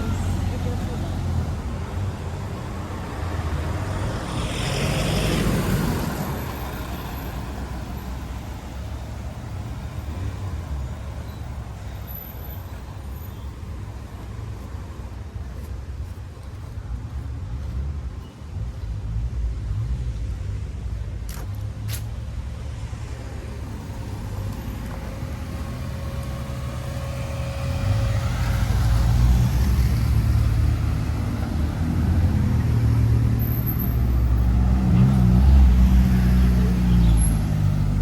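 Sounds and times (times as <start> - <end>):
rush of vehicle passing: 0.0 - 8.8, 21.9 - 38.0
car engines rumbling: 0.0 - 38.0.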